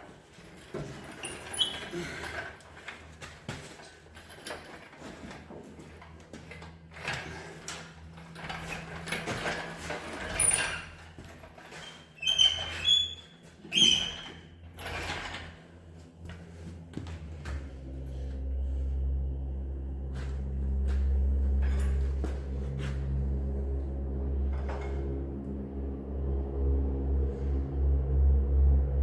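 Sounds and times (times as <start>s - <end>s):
short squeaks: 1.0s - 2.5s, 8.6s - 11.1s, 11.7s - 15.6s
faint steady hum: 13.2s - 29.0s.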